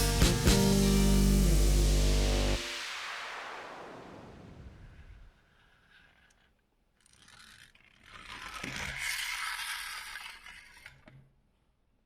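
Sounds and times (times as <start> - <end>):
model car mechanism scraping and clicking: 5.7 - 11.3.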